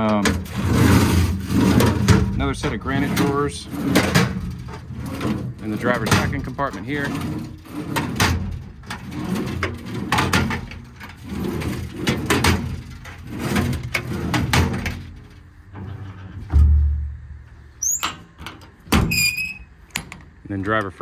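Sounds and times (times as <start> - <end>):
drawers sliding open and shut: 0.0 - 20.4
heavy low thump: 16.3 - 17.8.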